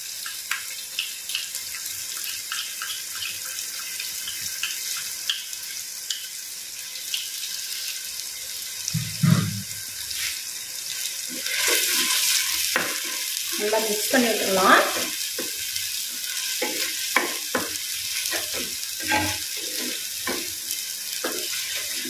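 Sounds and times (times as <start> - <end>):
food sizzling in oil: 0.0 - 22.0
spatula stirring: 11.3 - 22.0.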